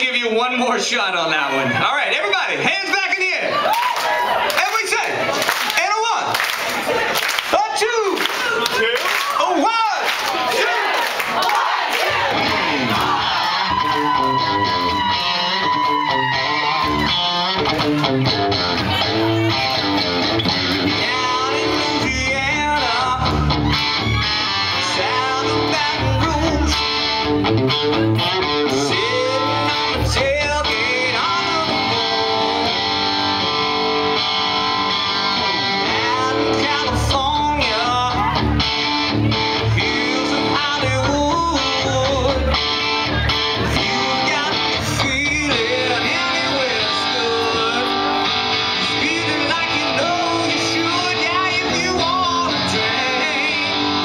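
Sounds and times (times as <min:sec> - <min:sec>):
live band playing: 0:11.7 - 0:54.0
electric guitar lead: 0:12.2 - 0:54.0.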